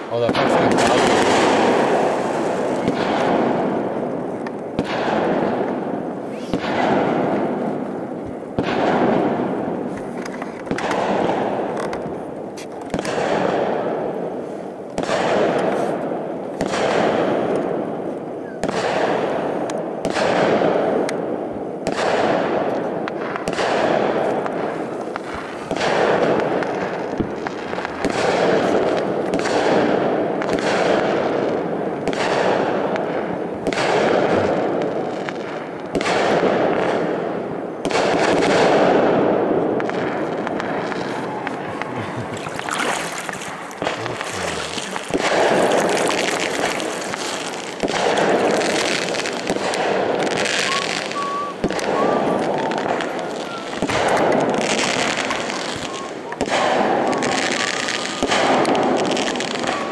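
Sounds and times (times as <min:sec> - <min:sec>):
fireworks bursting: 0:00.0 - 0:59.9
long echo: 0:37.1 - 0:54.6.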